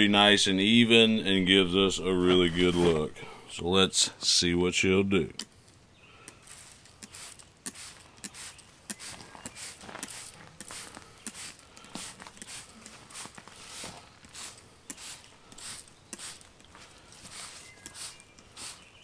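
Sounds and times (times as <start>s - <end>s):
spray bottle hissing sprays: 6.4s - 19.0s.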